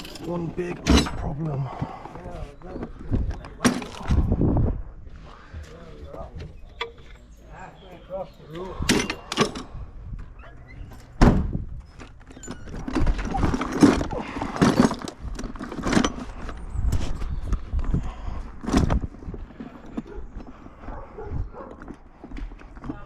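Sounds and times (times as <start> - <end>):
tools knocking and clunking: 8.8 - 9.7
heavy thunk: 11.2 - 11.6.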